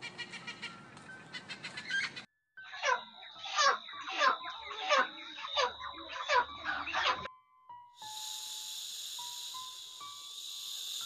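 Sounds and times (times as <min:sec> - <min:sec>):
hens squawking: 0:01.3 - 0:07.3
thin steady high tone: 0:07.8 - 0:11.0.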